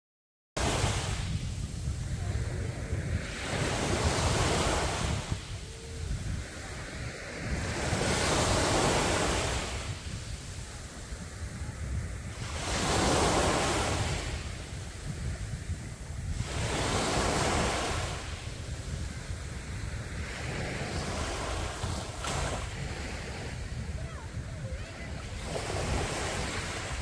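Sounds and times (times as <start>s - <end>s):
sea waves breaking on beach: 0.6s - 27.0s
wind rumbling on microphone: 0.6s - 27.0s.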